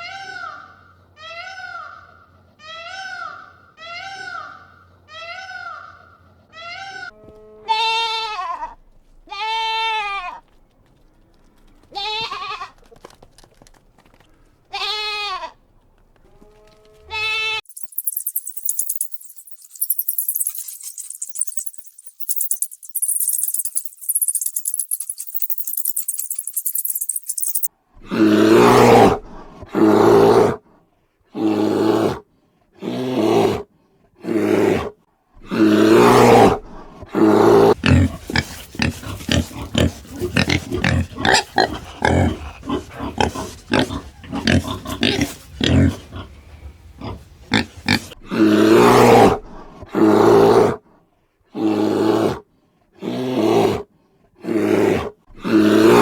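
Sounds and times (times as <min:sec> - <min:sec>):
high jingling rattle: 0:17.6 - 0:27.7
donkey braying: 0:37.7 - 0:48.2.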